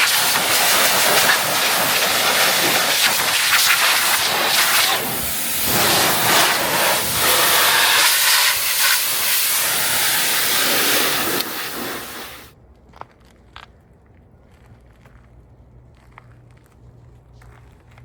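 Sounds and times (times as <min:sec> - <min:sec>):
pressure washer spraying water: 0:00.0 - 0:12.5.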